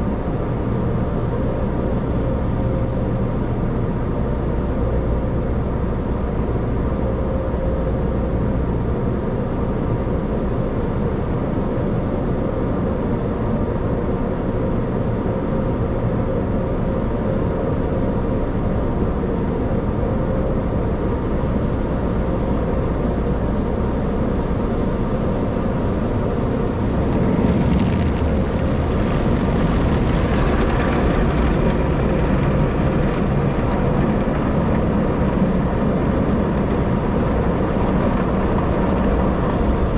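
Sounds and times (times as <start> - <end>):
car wash machinery drone: 0.0 - 39.9.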